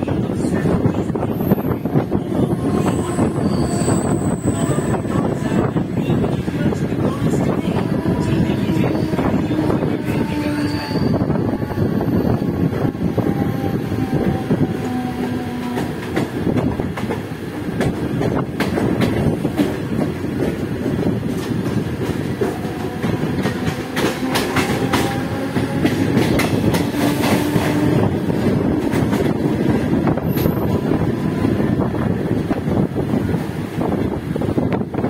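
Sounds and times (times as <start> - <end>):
train wheels rumbling on rail: 0.0 - 35.0
clickety-clack over rail joints: 13.3 - 35.0.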